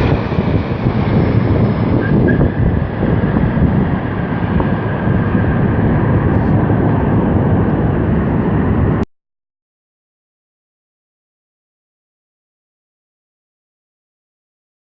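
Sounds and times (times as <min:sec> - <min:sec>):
jet engines rumbling: 0:00.0 - 0:09.1.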